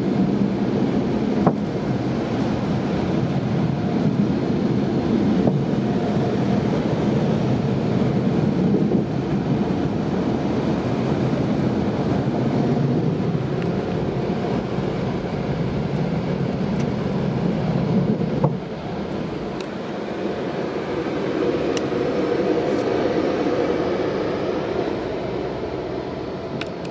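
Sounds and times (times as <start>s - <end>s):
car wash dryer blowers: 0.0s - 26.9s.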